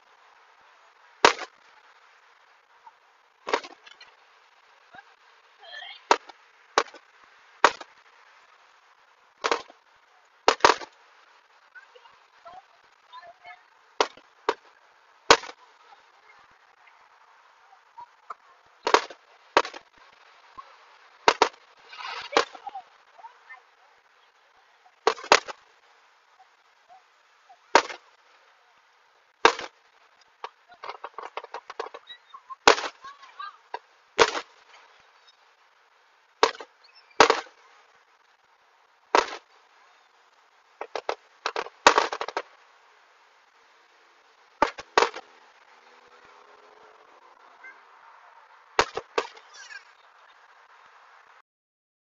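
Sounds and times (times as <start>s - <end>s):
rapid firework crackling: 18.8s - 22.8s.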